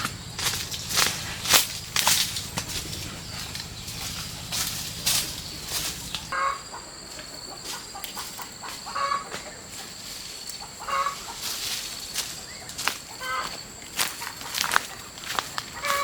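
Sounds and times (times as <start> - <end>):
clicks and rustles: 0.0 - 6.3
chickens clucking: 0.0 - 16.0.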